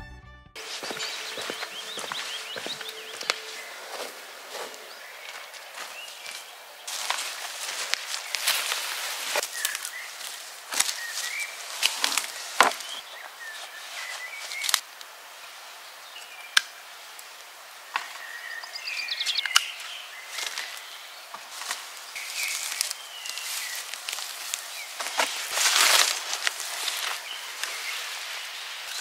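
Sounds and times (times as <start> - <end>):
bird trill: 0.6 - 6.5
small birds chirping: 0.6 - 29.0
rustles and scrapes: 21.4 - 29.0.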